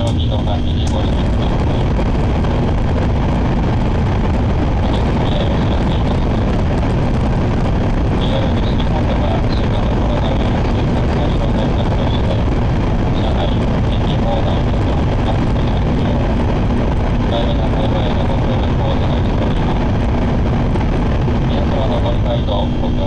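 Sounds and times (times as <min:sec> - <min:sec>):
train rumble and rushing: 0:00.0 - 0:04.8
faint high whine: 0:00.0 - 0:23.0.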